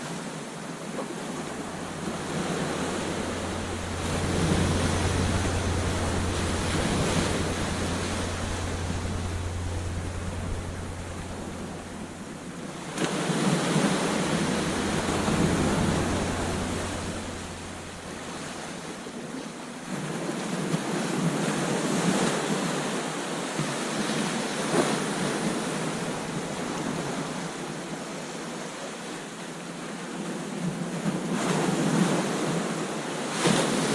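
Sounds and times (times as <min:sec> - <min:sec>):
ocean surf breaking on beach: 0:00.0 - 0:20.9
low rumble: 0:01.0 - 0:19.5, 0:25.3 - 0:27.8.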